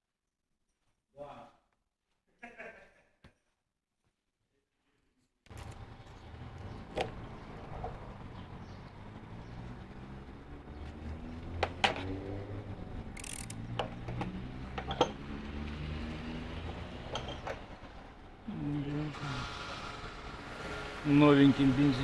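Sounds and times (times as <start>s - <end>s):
engine running at low speed: 5.5s - 22.0s
sharp clicks: 13.1s - 14.0s.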